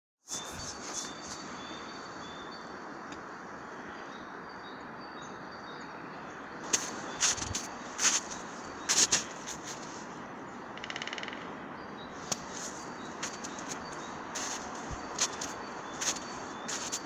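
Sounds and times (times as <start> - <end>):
high bird calls: 6.6 - 17.0.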